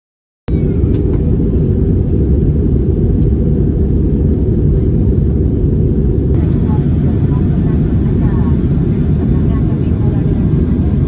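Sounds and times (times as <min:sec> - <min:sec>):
airliner cabin engine rumble: 0:00.5 - 0:11.0.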